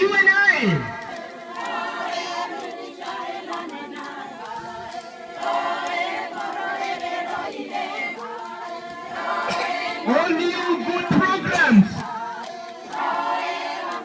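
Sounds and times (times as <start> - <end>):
women singing unaccompanied: 1.0 - 10.1, 11.8 - 14.0.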